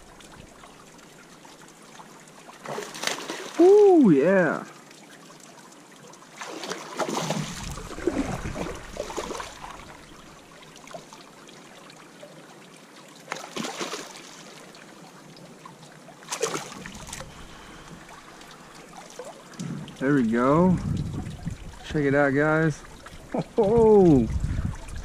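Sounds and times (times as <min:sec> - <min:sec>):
water splashing: 0:00.0 - 0:25.0.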